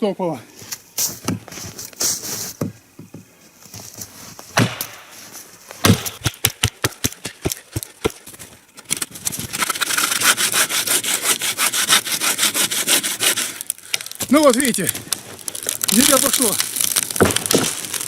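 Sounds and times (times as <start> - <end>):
bow saw cutting wood: 9.5 - 13.7.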